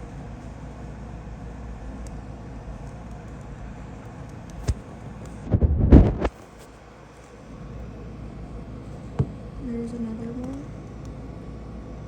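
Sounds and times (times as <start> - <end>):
low outdoor rumble: 0.0 - 12.0
loud thumps: 5.4 - 6.3.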